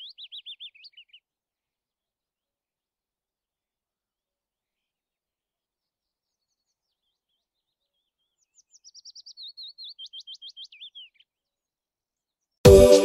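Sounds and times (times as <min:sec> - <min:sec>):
songbird singing: 0:00.0 - 0:01.2, 0:05.8 - 0:13.0.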